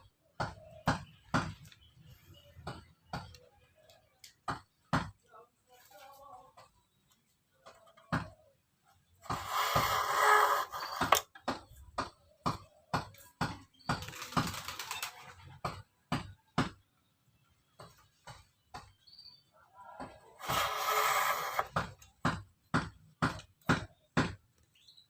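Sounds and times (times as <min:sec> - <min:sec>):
sharp knocks on spokes: 0:00.4 - 0:01.7, 0:09.2 - 0:14.6, 0:20.0 - 0:24.5
scraping: 0:09.3 - 0:11.2, 0:20.4 - 0:21.8.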